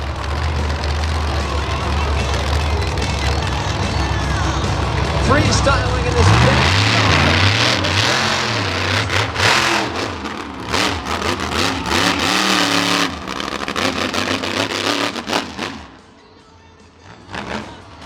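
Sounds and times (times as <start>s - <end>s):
truck engine revving hard: 0.0s - 16.2s, 17.0s - 18.0s
sharp cracks: 6.8s - 16.0s.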